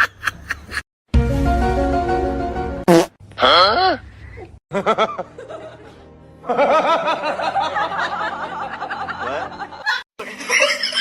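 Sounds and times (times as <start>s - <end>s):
music: 1.1s - 2.9s, 4.7s - 10.0s.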